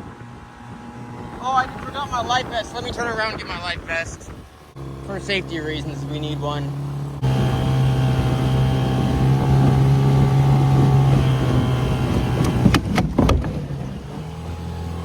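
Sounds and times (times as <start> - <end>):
outboard motor running: 0.0 - 15.0
wooden seat cracking: 12.4 - 13.6.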